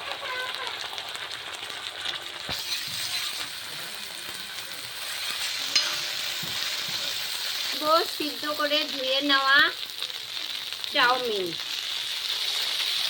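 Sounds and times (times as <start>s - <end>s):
food sizzling in hot oil: 0.0s - 13.0s
metallic clinks against pan: 5.7s - 6.4s.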